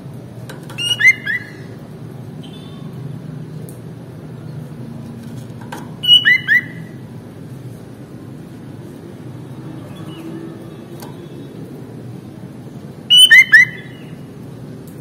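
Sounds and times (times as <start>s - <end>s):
bird whistled calls: 0.8s - 1.7s, 6.0s - 7.0s, 13.1s - 14.2s.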